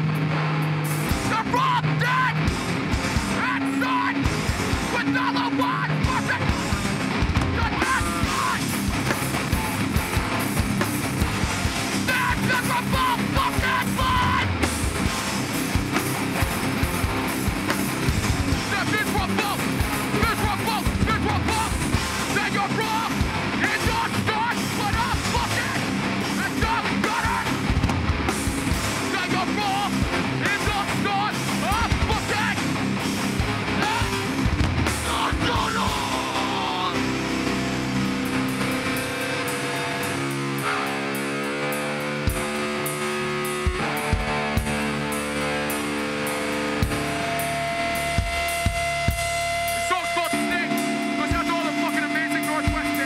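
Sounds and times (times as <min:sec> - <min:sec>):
distorted guitars: 0:00.0 - 0:53.0
fast dense drumming: 0:00.0 - 0:53.0
person yelling: 0:01.3 - 0:02.5, 0:03.3 - 0:04.3, 0:04.9 - 0:06.7, 0:07.5 - 0:08.7, 0:12.0 - 0:14.6, 0:18.6 - 0:27.6, 0:29.0 - 0:32.7, 0:33.8 - 0:34.3, 0:35.0 - 0:37.2
drum hits: 0:24.7 - 0:36.4.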